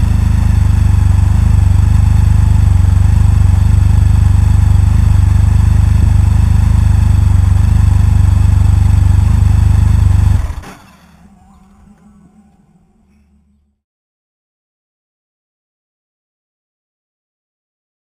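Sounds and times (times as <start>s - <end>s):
deep loud engine exhaust: 0.0s - 10.7s.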